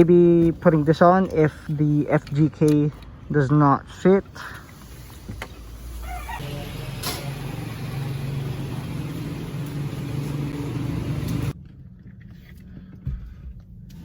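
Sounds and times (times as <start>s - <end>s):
car engine humming: 4.6s - 11.6s.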